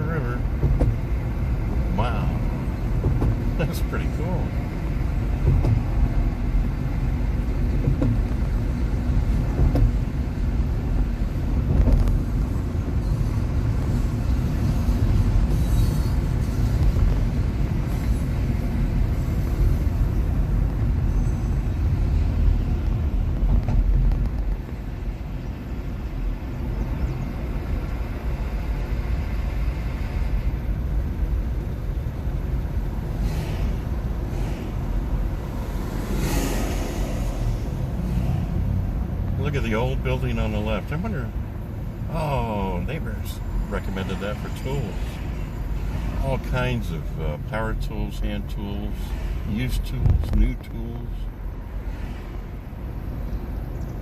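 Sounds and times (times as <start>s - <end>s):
road and tyre rumble in car: 0.0s - 54.0s.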